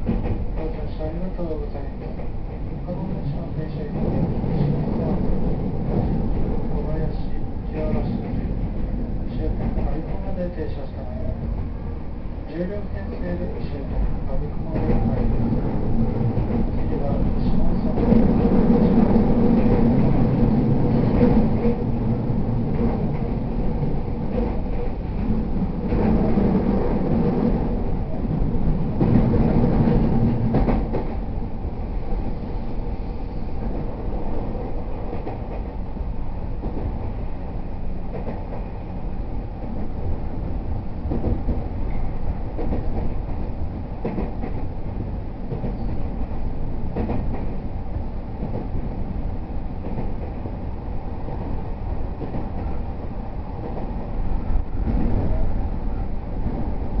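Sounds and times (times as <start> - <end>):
track clacks: 0.0 - 11.9, 12.6 - 32.3, 33.6 - 55.5
train wheel and rail rumble: 0.0 - 57.0.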